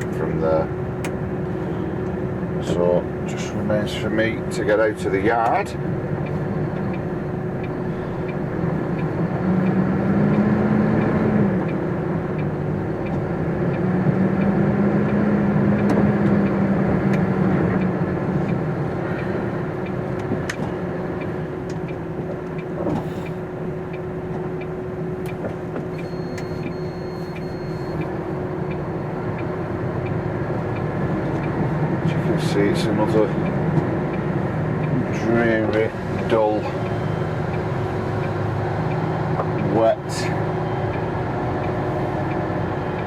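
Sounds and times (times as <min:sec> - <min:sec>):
truck diesel engine: 0:00.0 - 0:43.0.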